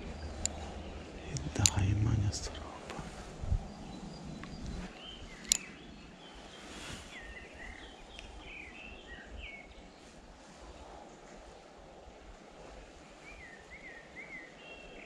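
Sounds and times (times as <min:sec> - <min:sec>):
small birds chirping: 0:00.0 - 0:10.1
sharp click: 0:05.4 - 0:05.7.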